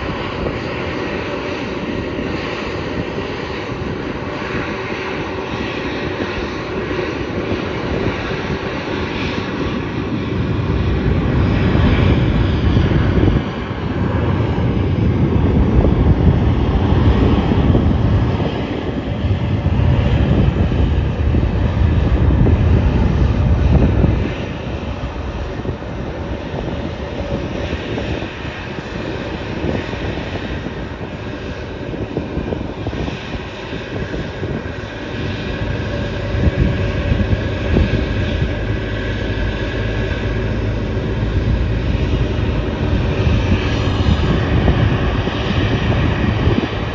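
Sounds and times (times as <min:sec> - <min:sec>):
airplane engines roaring: 0:00.0 - 0:46.9
heavy low rumble: 0:00.0 - 0:46.9
high engine whine: 0:00.0 - 0:46.9.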